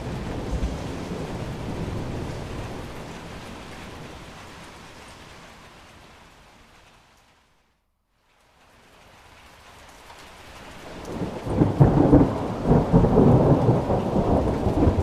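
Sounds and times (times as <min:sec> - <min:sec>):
rolling thunder: 0:00.0 - 0:05.1, 0:10.8 - 0:15.0
rain hiss: 0:00.0 - 0:15.0.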